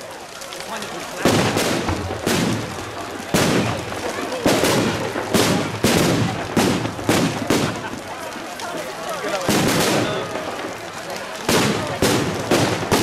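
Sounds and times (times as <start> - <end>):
firework bangs: 0.0 - 13.0.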